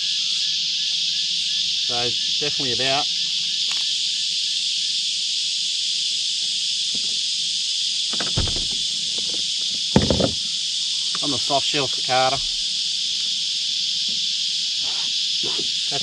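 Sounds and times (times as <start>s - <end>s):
cicadas shrilling: 0.0s - 16.0s
brief thuds: 8.1s - 9.4s, 10.0s - 10.4s.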